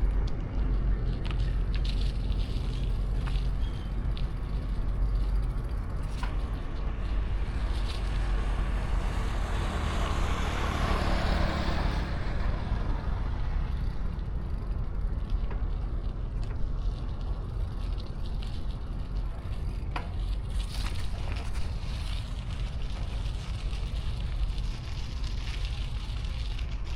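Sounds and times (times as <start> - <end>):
city traffic rumble: 0.0 - 26.9
vehicle passing: 6.7 - 15.0.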